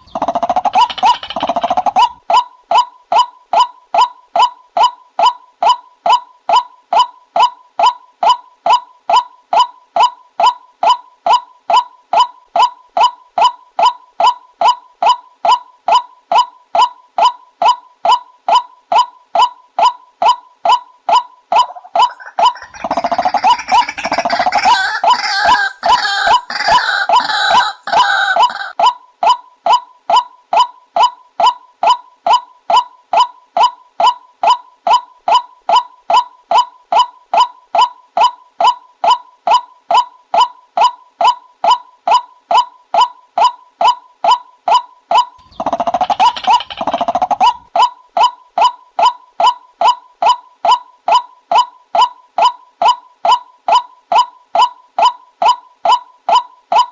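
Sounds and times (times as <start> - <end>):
waterhen croaking: 0.0 - 2.2, 21.6 - 28.8, 45.4 - 47.7.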